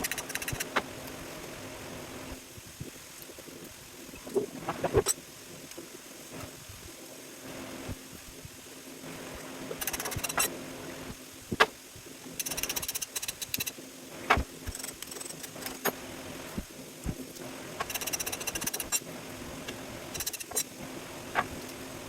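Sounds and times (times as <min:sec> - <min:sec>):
faint steady hum: 0:00.0 - 0:22.0
rapid tool clicking: 0:12.4 - 0:13.8, 0:17.8 - 0:19.0.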